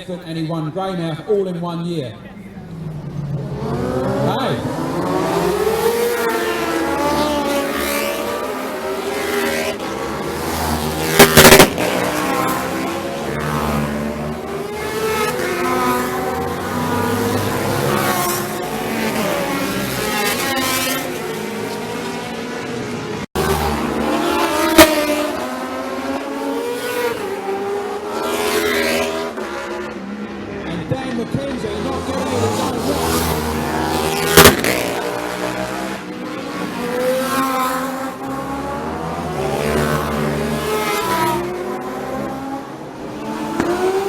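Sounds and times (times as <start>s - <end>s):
racing motorcycles passing: 0.0s - 44.0s
sharp loud crackles: 10.9s - 12.7s, 34.1s - 35.3s
sharp knock: 34.4s - 34.8s.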